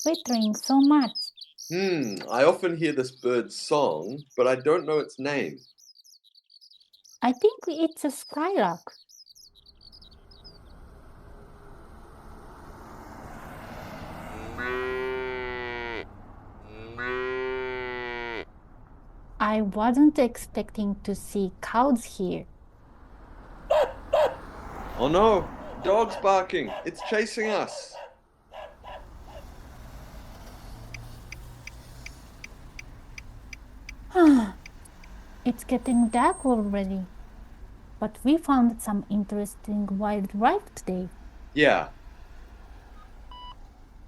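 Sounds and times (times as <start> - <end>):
low traffic hum: 0.0 - 44.0
cow mooing: 13.8 - 18.5
dog barking: 23.7 - 24.5, 25.6 - 29.6
high ticking beeps: 30.9 - 36.8.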